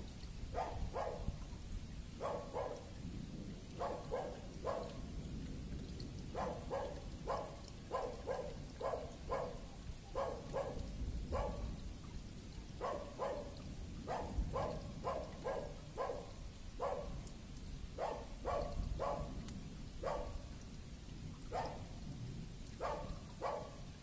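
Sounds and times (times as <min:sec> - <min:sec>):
dog barking: 0:00.5 - 0:01.4, 0:02.2 - 0:03.0, 0:03.7 - 0:05.1, 0:06.3 - 0:11.8, 0:12.8 - 0:17.3, 0:17.9 - 0:19.4, 0:20.0 - 0:20.5, 0:21.5 - 0:22.0, 0:22.8 - 0:23.9.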